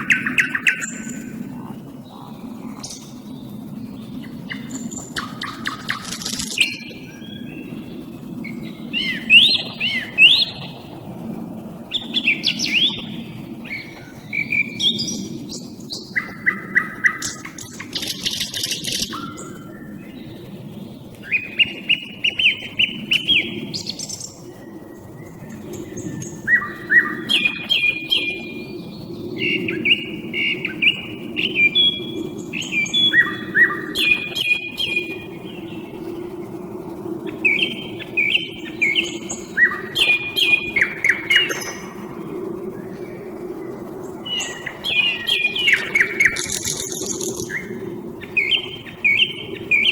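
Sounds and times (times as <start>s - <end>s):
steady low hum: 0.0s - 49.9s
nightingale singing: 4.2s - 7.7s, 11.9s - 20.3s, 44.2s - 49.9s.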